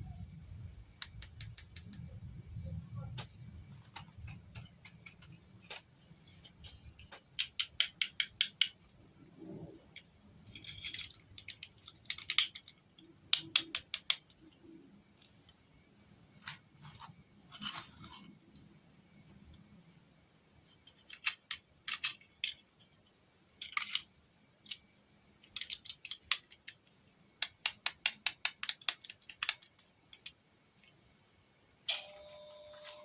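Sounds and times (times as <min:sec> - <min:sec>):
plastic pieces clicking: 0:01.0 - 0:02.2, 0:03.9 - 0:09.0, 0:09.9 - 0:15.6, 0:20.7 - 0:31.0.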